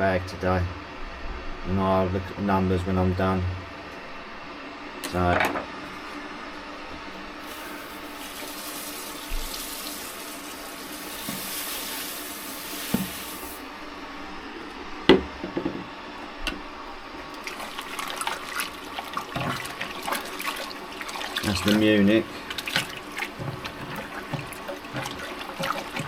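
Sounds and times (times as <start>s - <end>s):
malt pouring into water: 17.2s - 26.0s.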